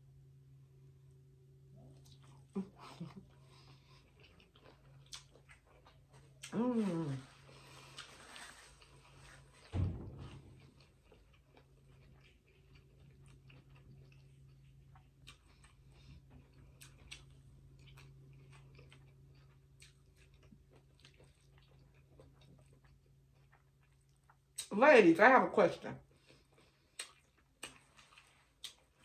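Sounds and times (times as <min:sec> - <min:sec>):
low steady hum: 0:00.0 - 0:29.0
soft chewing: 0:01.0 - 0:24.7, 0:26.0 - 0:29.0
thump: 0:09.7 - 0:10.6.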